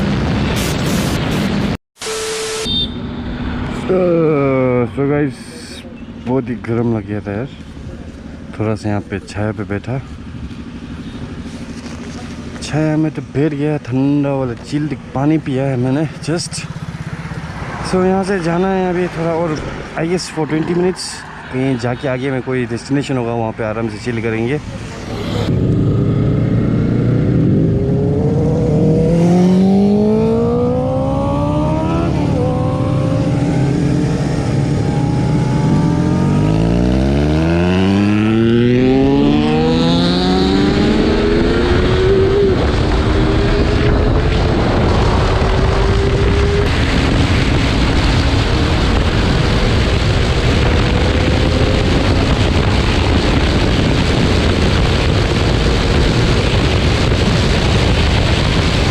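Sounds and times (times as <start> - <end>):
motorcycle engine accelerating: 2.8 - 20.1, 24.6 - 58.9
wind rush: 24.6 - 58.9.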